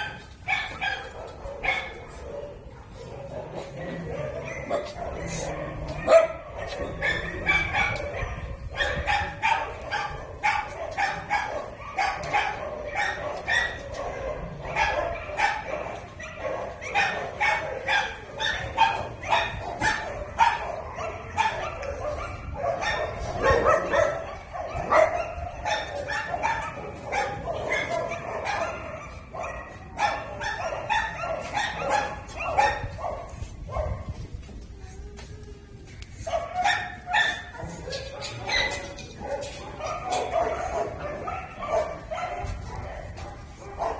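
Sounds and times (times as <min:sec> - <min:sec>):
pack of dogs barking: 0:00.0 - 0:34.4, 0:36.1 - 0:43.9.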